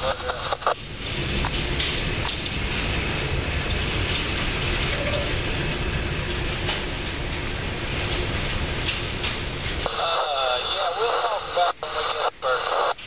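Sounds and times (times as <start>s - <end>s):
freight train wheels on rails: 0.7s - 9.9s.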